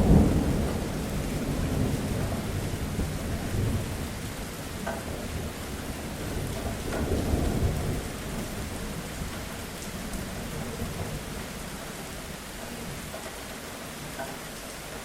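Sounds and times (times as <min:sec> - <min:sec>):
thunder rumbling: 0:00.0 - 0:13.1
steady rain falling: 0:00.0 - 0:15.0.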